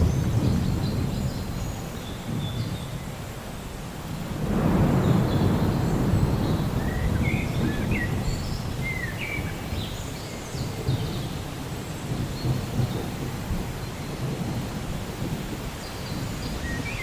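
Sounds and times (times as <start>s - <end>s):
thunder rolling: 0.0s - 3.0s, 4.2s - 9.8s
steady rain: 0.0s - 17.0s.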